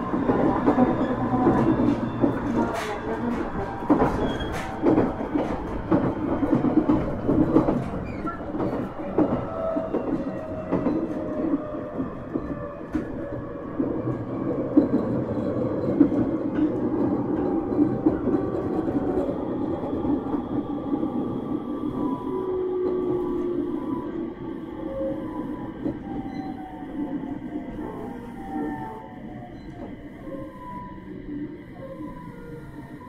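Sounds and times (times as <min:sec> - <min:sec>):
train wheels clacking over rail joints: 0:00.0 - 0:19.3.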